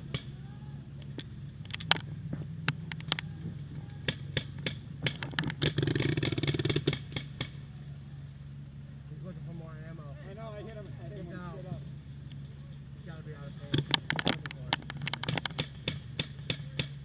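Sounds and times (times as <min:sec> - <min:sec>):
steady low hum: 0:00.0 - 0:17.0
paintballs striking: 0:01.0 - 0:07.6, 0:13.6 - 0:17.0
paintball markers firing: 0:04.0 - 0:07.6, 0:13.6 - 0:17.0.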